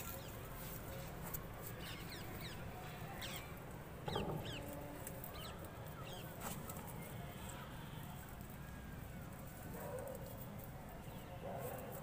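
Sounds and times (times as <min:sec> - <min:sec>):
small birds chirping: 0:00.0 - 0:07.7.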